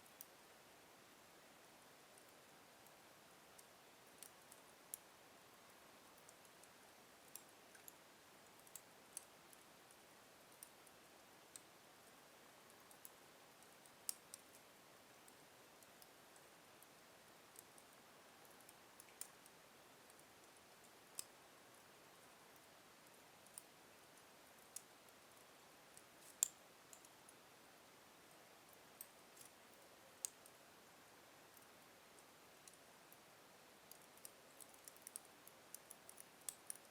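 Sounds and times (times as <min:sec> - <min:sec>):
low fire hiss: 0:00.0 - 0:36.9.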